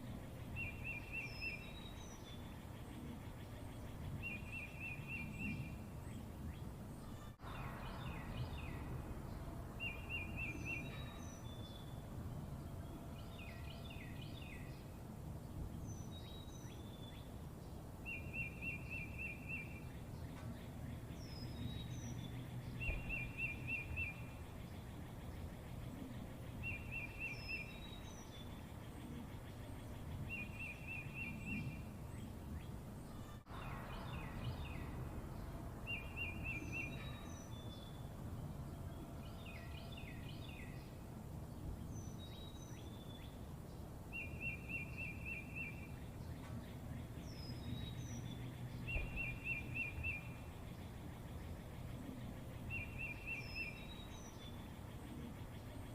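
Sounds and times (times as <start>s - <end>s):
steady low hum: 0.0s - 18.3s
small birds chirping: 0.0s - 55.9s.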